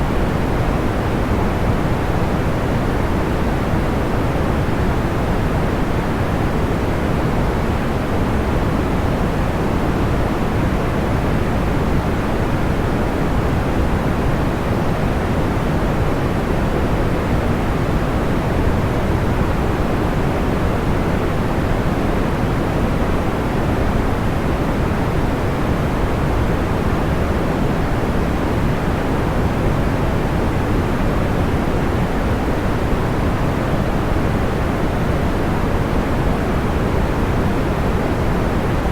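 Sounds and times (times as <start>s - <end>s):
white noise: 0.0s - 38.9s.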